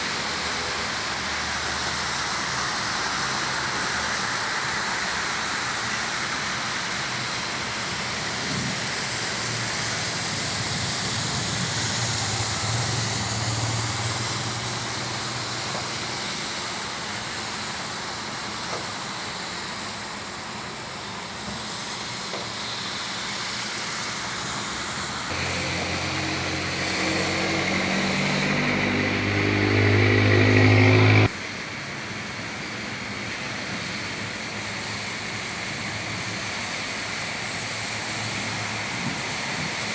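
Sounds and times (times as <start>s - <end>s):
vehicle engine: 0.0s - 18.9s, 23.5s - 31.6s
road traffic: 0.0s - 39.9s
rain hissing: 0.1s - 31.3s.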